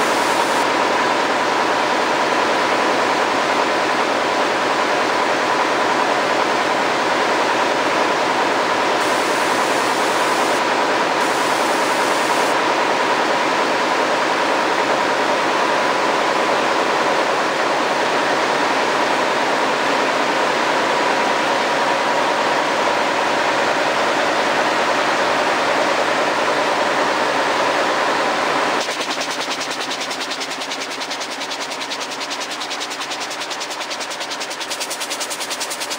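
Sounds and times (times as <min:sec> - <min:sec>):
steady machine whine: 0:00.0 - 0:04.6, 0:05.6 - 0:35.8
hissing air: 0:09.0 - 0:10.6
loom mechanical clatter: 0:28.8 - 0:35.9.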